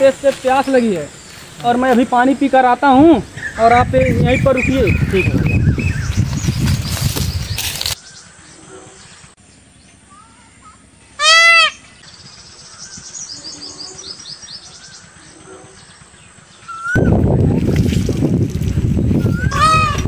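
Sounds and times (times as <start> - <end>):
birds chirping faintly: 0.0 - 17.2
loud animal call: 10.1 - 11.9, 19.3 - 20.0.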